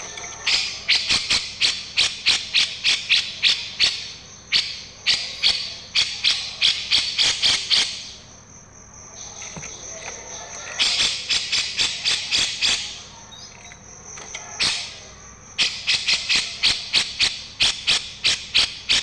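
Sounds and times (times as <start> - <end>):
sharp high bird chirps: 0.4 - 8.3, 14.6 - 19.0.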